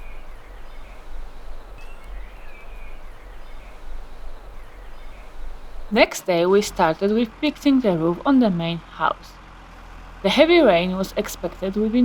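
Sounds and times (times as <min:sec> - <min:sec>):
bird chirping: 0:00.0 - 0:07.1
low rumble and hiss: 0:00.0 - 0:12.0.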